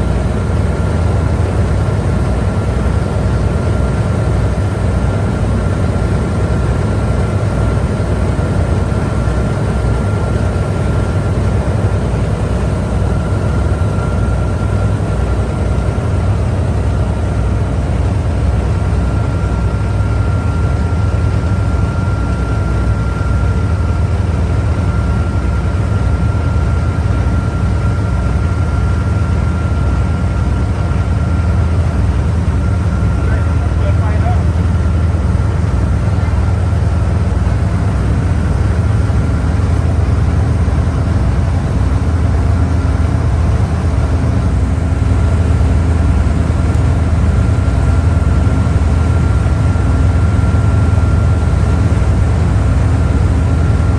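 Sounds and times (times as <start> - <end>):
boat engine droning: 0.0 - 53.9.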